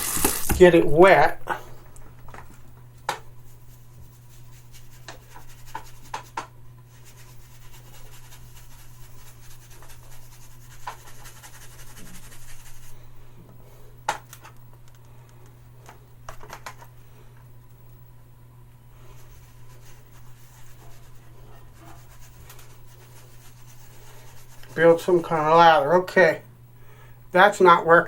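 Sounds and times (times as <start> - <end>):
steady low hum: 0.0 - 28.0
brush scratching shaving soap: 3.5 - 13.0, 19.0 - 25.5.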